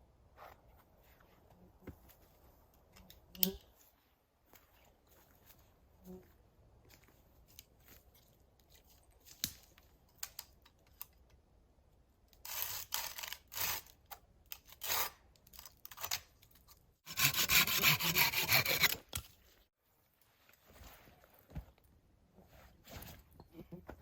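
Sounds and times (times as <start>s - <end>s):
hand saw cutting wood: 17.0s - 19.2s.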